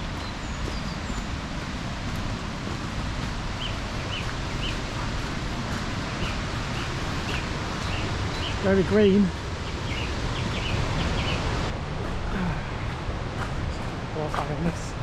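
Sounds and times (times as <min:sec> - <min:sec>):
flowing water: 0:00.0 - 0:15.0
small bird chirping: 0:03.6 - 0:04.8.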